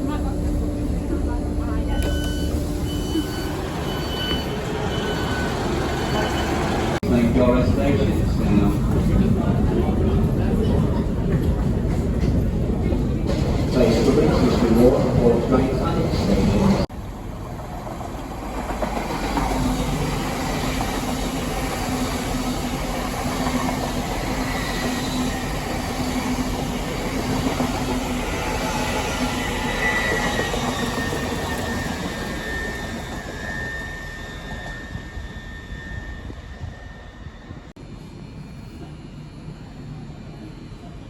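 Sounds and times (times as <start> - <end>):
train wheels rumbling on rail: 0.0 - 41.0
high wheel squeal: 2.0 - 7.0, 19.6 - 37.7.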